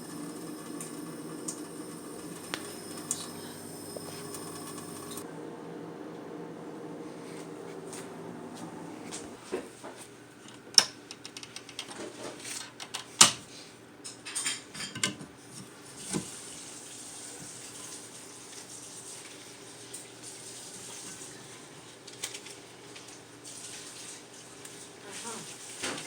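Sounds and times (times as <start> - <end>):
tap running: 0.0 - 9.6.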